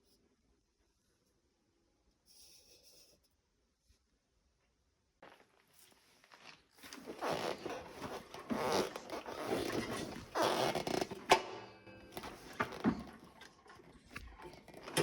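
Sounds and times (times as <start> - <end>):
rustling and scraping: 5.3 - 15.0.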